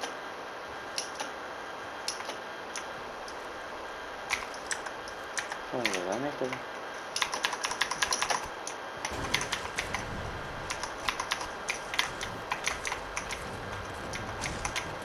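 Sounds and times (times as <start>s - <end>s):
keyboard and mouse clicking: 4.3s - 10.0s, 10.7s - 13.5s
low rumble: 9.0s - 15.0s.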